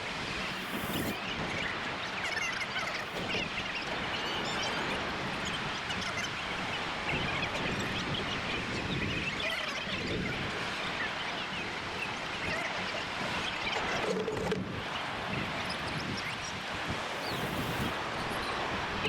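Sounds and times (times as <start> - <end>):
wind on microphone: 0.0 - 1.9, 3.0 - 10.8, 13.1 - 19.0
ocean surf washing in: 0.0 - 2.0, 2.8 - 5.8, 14.8 - 19.0.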